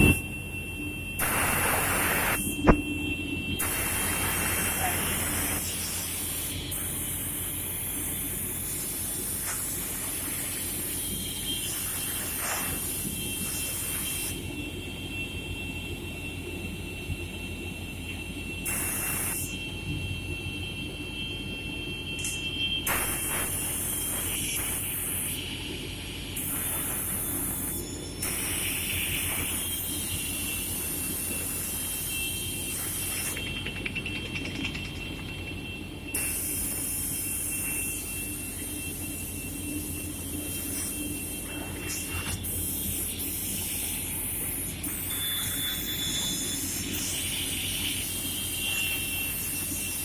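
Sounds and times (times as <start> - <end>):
machine hum: 0.0 - 8.5
saw hissing: 1.2 - 2.8, 3.6 - 14.4, 18.7 - 19.5, 22.9 - 25.5, 26.3 - 33.4, 40.2 - 50.0.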